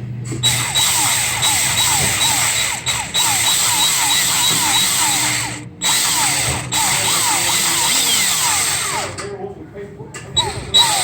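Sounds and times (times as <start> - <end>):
power drill drilling metal: 0.4 - 9.3, 10.4 - 11.0
chirping squeal of drill bit: 10.4 - 11.0.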